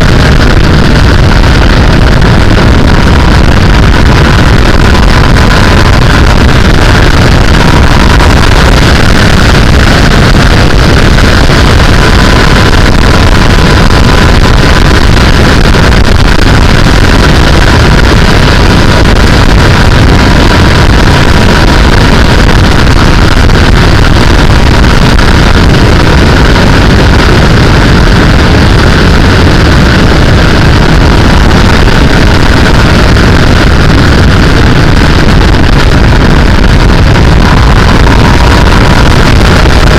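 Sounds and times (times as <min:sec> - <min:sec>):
motorcycle engine running: 0:00.0 - 0:20.9
wind rushing on microphone: 0:00.0 - 0:39.9.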